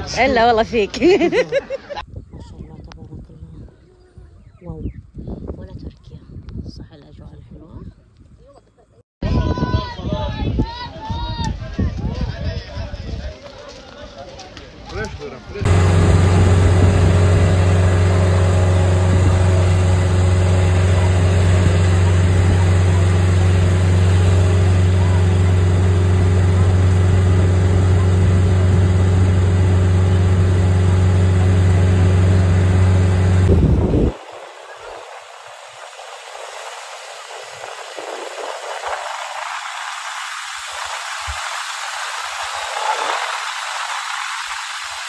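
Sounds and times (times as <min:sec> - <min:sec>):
vehicle engine idling: 0:15.6 - 0:38.7
rain falling: 0:34.0 - 0:45.0.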